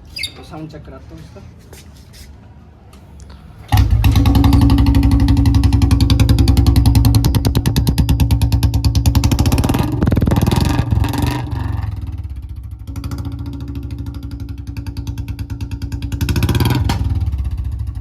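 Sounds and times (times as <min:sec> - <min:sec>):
motorcycle engine idling and revving: 0:03.7 - 0:18.0.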